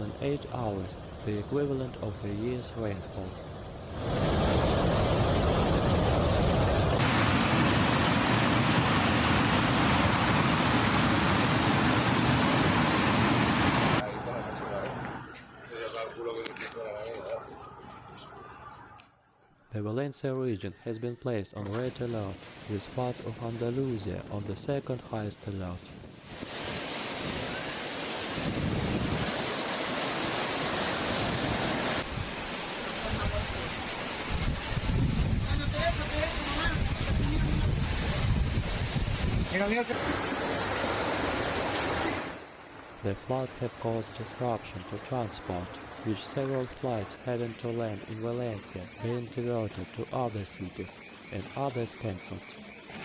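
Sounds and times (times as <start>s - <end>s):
floodwater rushing roar: 0.0s - 14.6s, 21.9s - 50.9s
torrential rain pouring: 21.9s - 47.4s.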